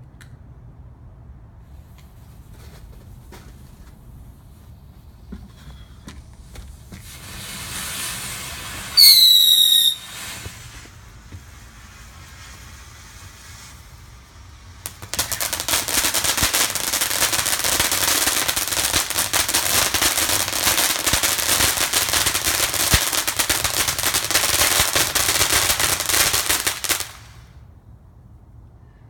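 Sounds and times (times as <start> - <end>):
firecrackers banging: 5.2 - 27.4.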